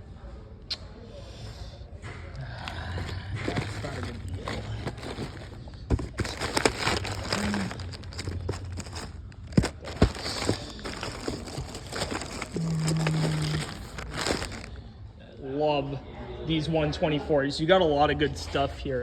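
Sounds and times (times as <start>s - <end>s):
rustling and crinkling: 2.5s - 15.0s.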